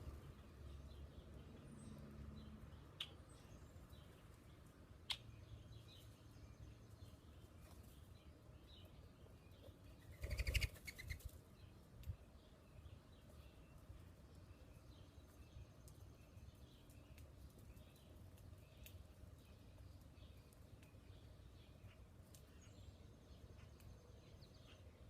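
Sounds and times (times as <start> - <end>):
faint bird chirps: 8.8 - 11.4
bird wingbeats: 10.1 - 11.3.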